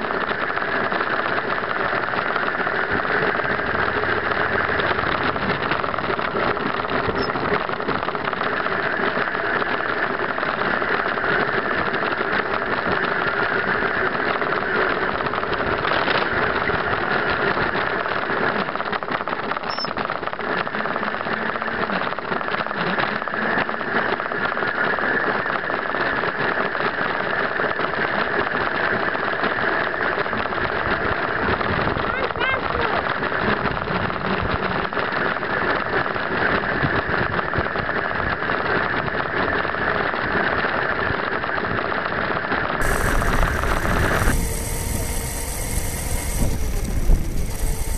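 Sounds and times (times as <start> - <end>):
motorcycle engine running steadily: 0.0 - 25.1, 42.8 - 47.9.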